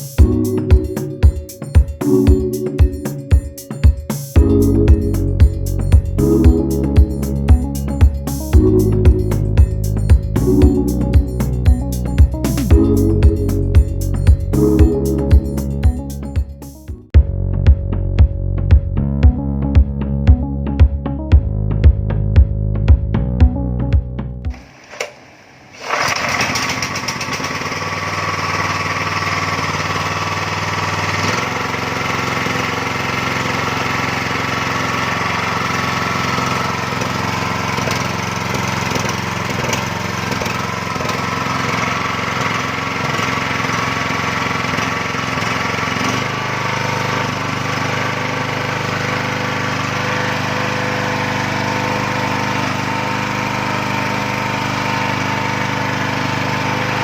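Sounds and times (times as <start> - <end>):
gasoline engine running: 4.4 - 17.3.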